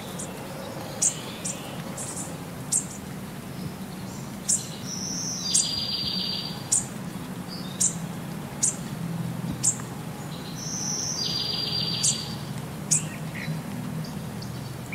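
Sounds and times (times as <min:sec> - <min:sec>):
bird chirps: 0:04.5 - 0:06.9, 0:10.4 - 0:13.5.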